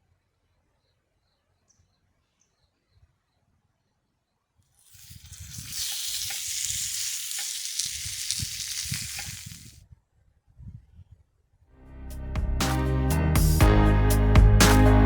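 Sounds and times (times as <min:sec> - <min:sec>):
pork sizzling in a pan: 0:04.8 - 0:09.8.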